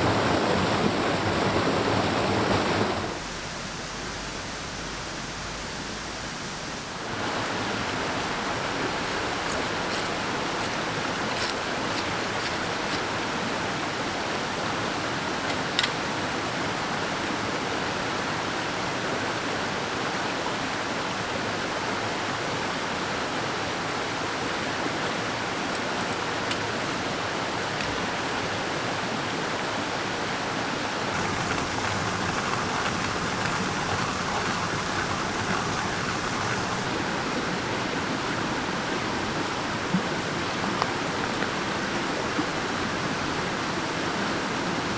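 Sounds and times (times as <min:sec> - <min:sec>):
mountain stream running: 0:00.0 - 0:44.9
faint clicks: 0:31.1 - 0:37.1.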